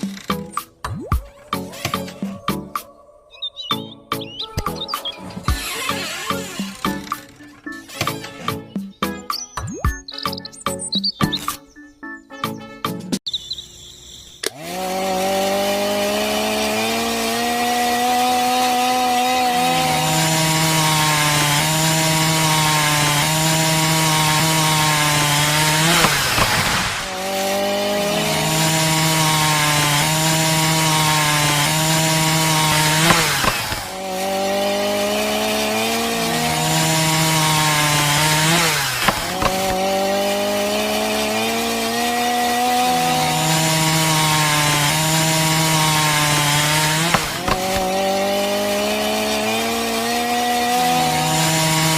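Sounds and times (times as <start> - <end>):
small motor whining: 4.6 - 8.6, 18.3 - 51.9.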